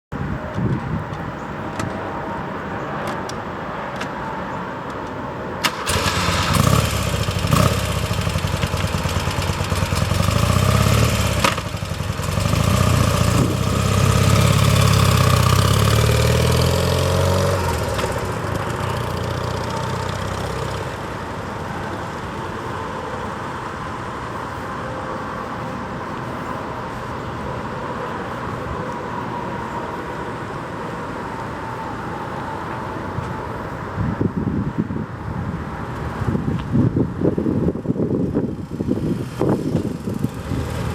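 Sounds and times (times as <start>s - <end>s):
motorcycle engine revving and idling: 5.9s - 21.2s, 38.3s - 40.9s.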